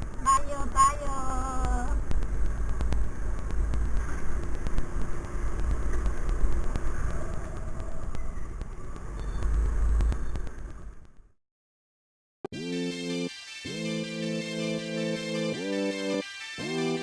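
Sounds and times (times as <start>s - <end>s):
wind rumbling on microphone: 1.0s - 11.2s.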